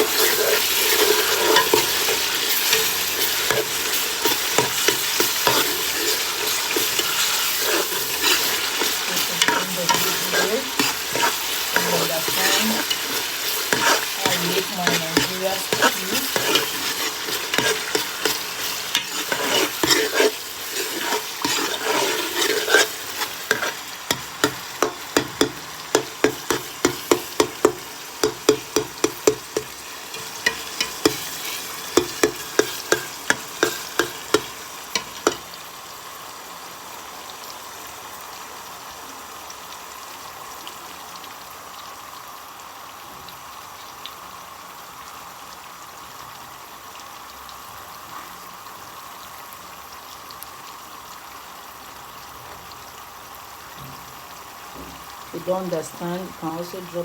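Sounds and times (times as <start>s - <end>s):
spoon scraping a pot: 0.0s - 35.4s
food sizzling in a pot: 0.0s - 57.0s.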